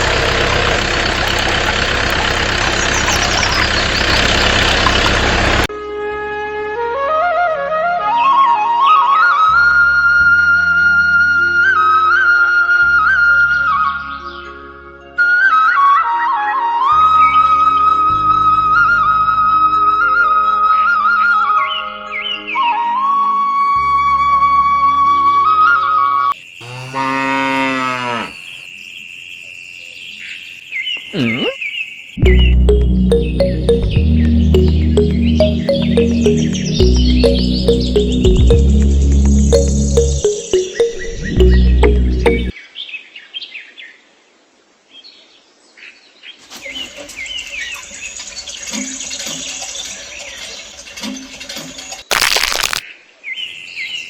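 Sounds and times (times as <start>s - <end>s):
small birds chirping: 0.1s - 5.6s, 29.8s - 42.8s
cow mooing: 26.6s - 28.6s.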